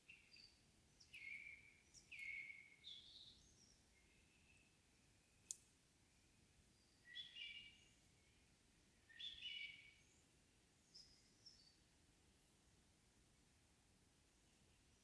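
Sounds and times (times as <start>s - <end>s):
songbirds singing faintly: 0.0s - 15.0s
sharp bird tick: 5.5s - 5.7s.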